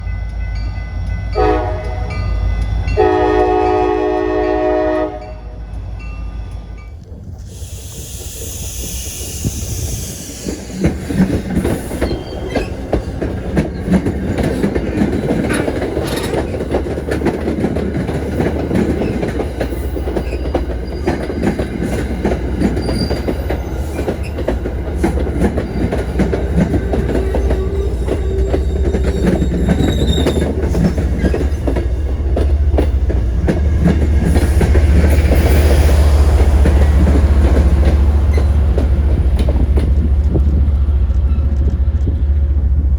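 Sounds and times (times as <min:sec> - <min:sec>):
low train rumble: 0:00.0 - 0:42.9
train wheels clicking over rail joints: 0:05.6 - 0:42.9
high wheel squeals: 0:11.6 - 0:13.9, 0:22.6 - 0:31.8.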